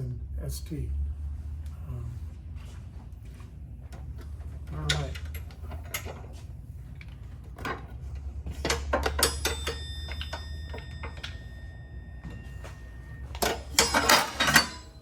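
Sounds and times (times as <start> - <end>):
steady low hum: 0.0 - 15.0
metal knocks and clinks: 4.0 - 6.4, 7.0 - 15.0.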